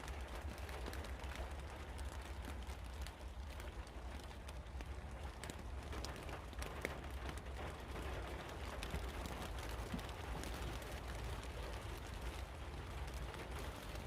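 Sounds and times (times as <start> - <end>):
rain pattering on metal: 0.0 - 14.0.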